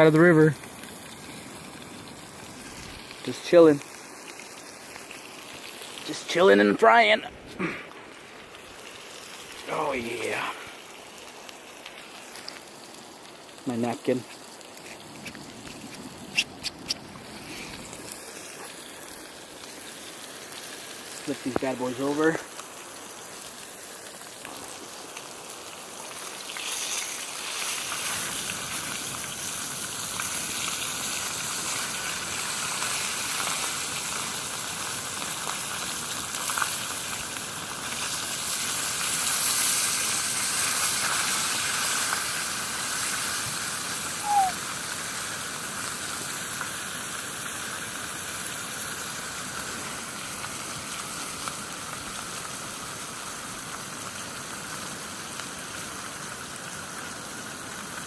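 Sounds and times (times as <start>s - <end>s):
fish sizzling in a pan: 0.0s - 58.0s
brief high squeak: 44.2s - 44.6s.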